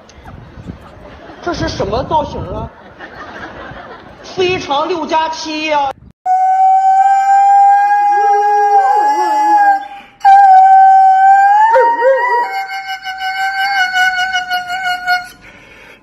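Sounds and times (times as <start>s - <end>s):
husky howling: 6.3s - 15.3s
lower wavering howl: 6.3s - 15.3s.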